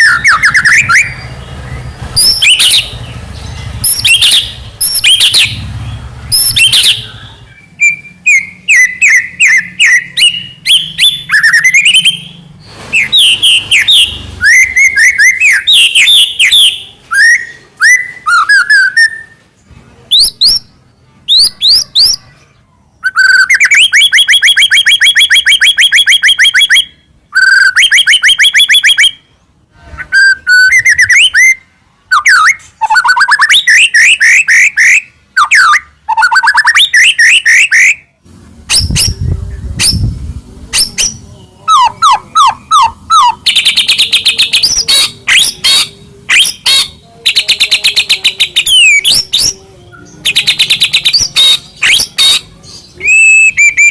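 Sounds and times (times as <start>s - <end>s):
bird singing whistled trills: 0.0s - 5.6s, 6.3s - 19.4s, 23.0s - 29.3s, 30.0s - 38.1s, 40.8s - 53.9s
low rumble: 38.3s - 40.7s.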